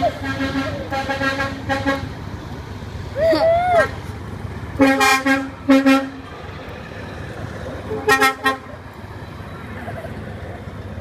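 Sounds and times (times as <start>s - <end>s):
truck horns honking: 0.0s - 2.3s, 4.7s - 6.4s, 7.8s - 8.9s
truck engines rumbling: 0.0s - 11.0s.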